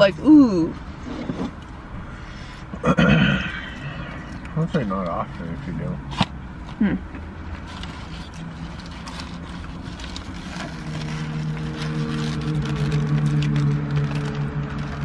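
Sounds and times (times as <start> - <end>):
low engine hum: 0.0 - 15.0
paper wrapper crinkling: 7.6 - 15.0.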